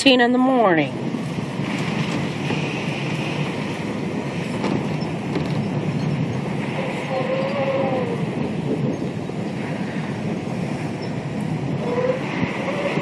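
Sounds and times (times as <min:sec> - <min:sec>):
storm wind and rain rushing: 0:00.0 - 0:13.0.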